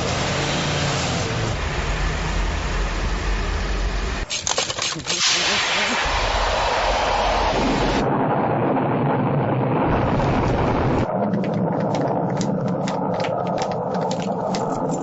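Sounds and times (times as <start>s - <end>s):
rocket engine roar: 5.1s - 15.0s
crackling clicks: 11.0s - 15.0s.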